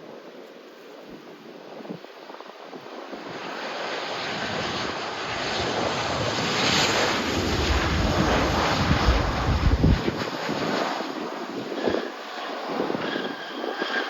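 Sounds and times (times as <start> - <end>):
jet airliner engine noise: 0.0 - 14.0
deep rumble: 6.2 - 10.2.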